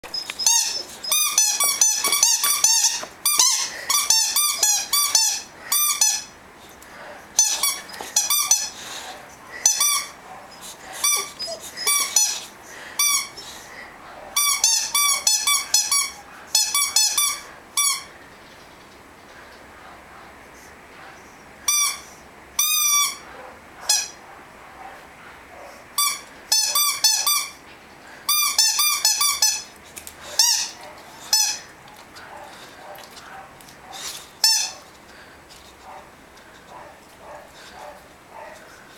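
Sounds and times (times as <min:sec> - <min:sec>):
squeaky rubber toy squeaks: 0:00.0 - 0:06.4, 0:07.4 - 0:08.8, 0:09.6 - 0:10.2, 0:11.0 - 0:13.5, 0:14.4 - 0:18.1, 0:21.7 - 0:23.2, 0:23.9 - 0:24.2, 0:26.0 - 0:27.6, 0:28.3 - 0:29.7, 0:30.4 - 0:31.7, 0:34.4 - 0:34.8.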